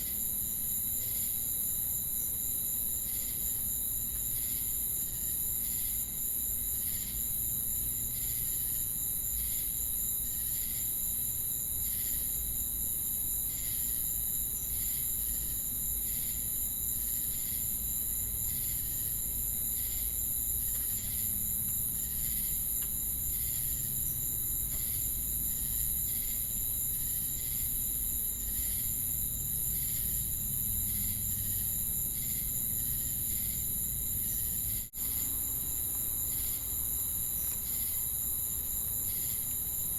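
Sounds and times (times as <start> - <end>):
insect chirping in pulses: 17.1 - 39.9.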